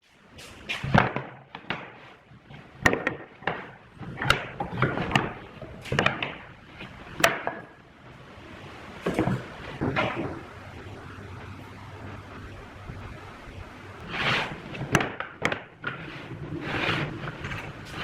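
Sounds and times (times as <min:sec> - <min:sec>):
scraping and rustling: 0:00.0 - 0:18.0
wooden knocks and clatter: 0:00.7 - 0:07.8, 0:09.0 - 0:10.5, 0:14.0 - 0:18.0
sharp wooden strikes: 0:02.8 - 0:07.8, 0:14.0 - 0:16.0.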